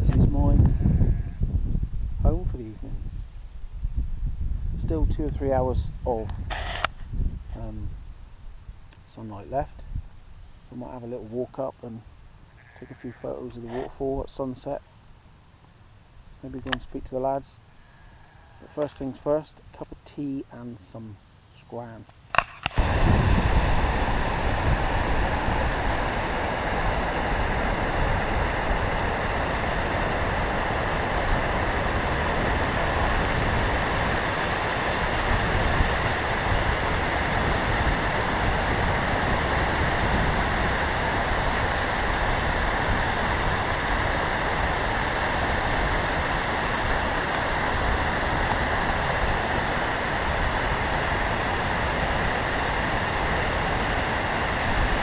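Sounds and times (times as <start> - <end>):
wind rumble on microphone: 0.0 - 11.4, 22.8 - 55.0
waterfall rushing: 22.8 - 55.0.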